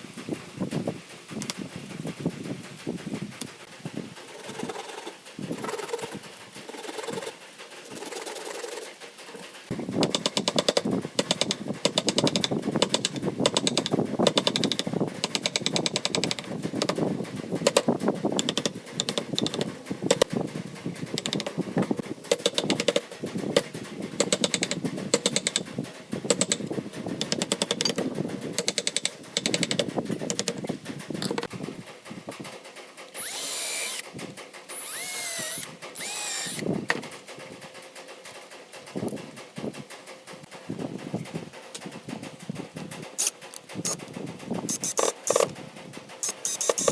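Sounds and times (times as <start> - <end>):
power tool cutting wood: 33.2 - 34.1, 34.7 - 36.7.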